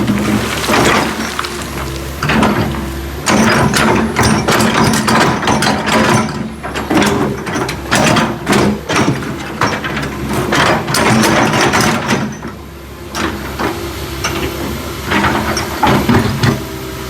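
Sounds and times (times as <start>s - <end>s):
backhoe engine running: 0.0s - 17.0s.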